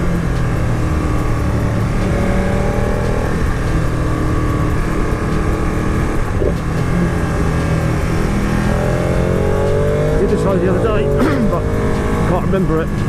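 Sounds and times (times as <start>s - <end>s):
motorcycle engine running: 0.0s - 13.0s
wind rushing: 0.0s - 13.0s.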